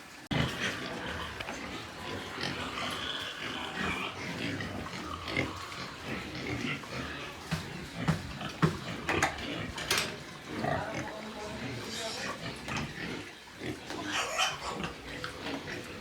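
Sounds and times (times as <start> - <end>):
pigs grunting and squealing: 0.3 - 16.0
sharp knocks: 7.5 - 9.3.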